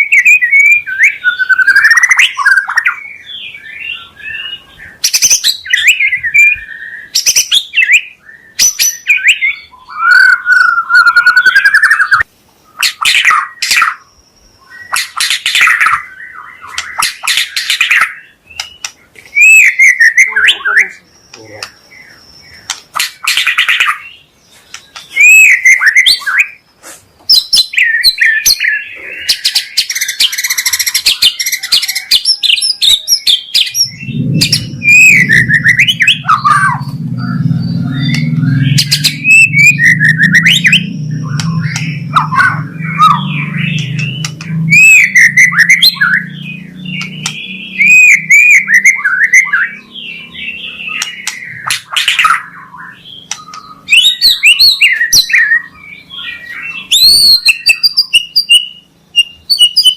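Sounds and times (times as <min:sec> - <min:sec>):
bird singing whistles and trills: 0:00.0 - 0:26.6, 0:27.3 - 0:59.9
low hum: 0:33.8 - 0:53.6.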